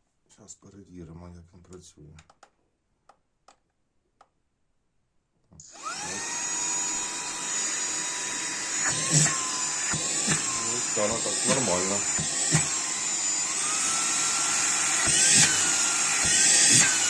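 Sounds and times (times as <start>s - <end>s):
vacuum cleaner motor whine: 5.6s - 17.0s.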